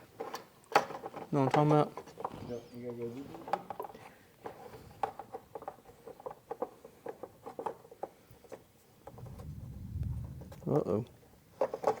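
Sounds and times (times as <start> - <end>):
low rumble: 9.2 - 10.6.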